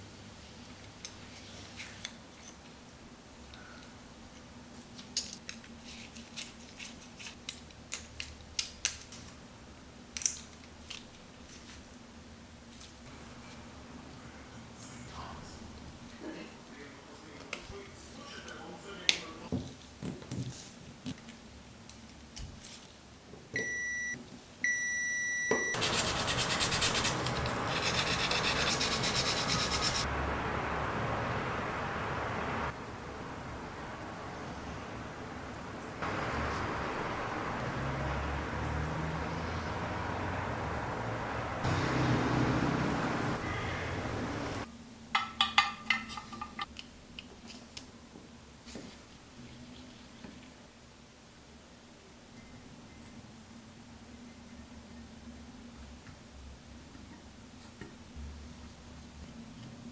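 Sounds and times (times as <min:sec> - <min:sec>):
machine grinding on metal: 0:25.8 - 0:30.1.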